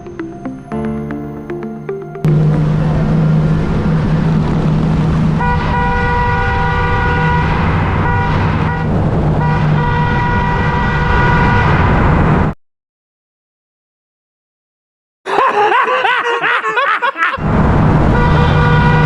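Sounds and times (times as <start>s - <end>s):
vehicle road and wind noise: 0.0s - 12.6s, 17.4s - 19.0s
horn blasts: 5.3s - 11.9s, 18.0s - 19.0s.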